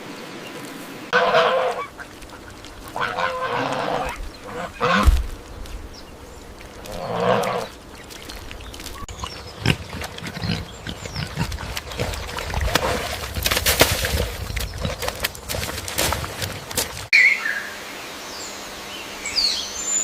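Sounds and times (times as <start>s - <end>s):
pig grunting and snuffling: 6.8s - 7.8s, 9.0s - 17.0s.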